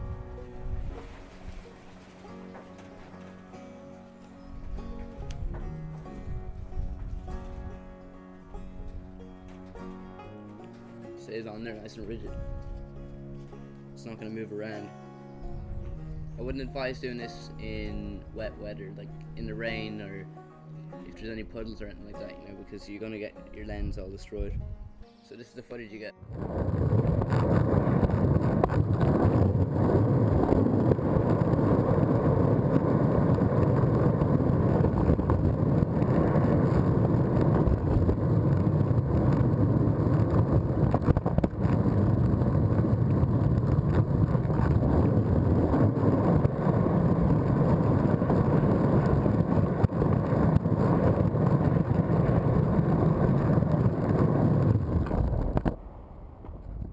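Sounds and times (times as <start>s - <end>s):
skateboard wheels rolling on pavement: 0.0s - 11.2s, 26.3s - 56.9s
wheels clicking over cracks: 1.0s - 6.1s, 8.9s - 11.1s, 26.3s - 55.8s.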